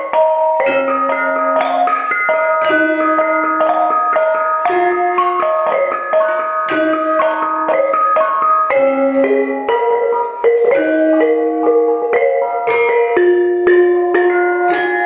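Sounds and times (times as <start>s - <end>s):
gamelan gong-chimes ringing: 0.0s - 15.0s.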